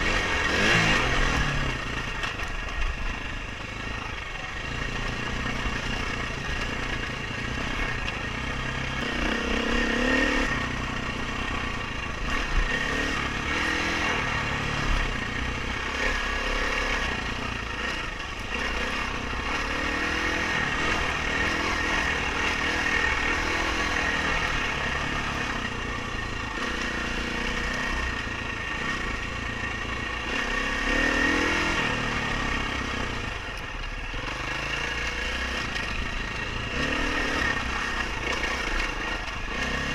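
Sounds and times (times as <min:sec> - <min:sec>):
dirt bike engine revving: 0:00.0 - 0:03.2, 0:03.8 - 0:39.9.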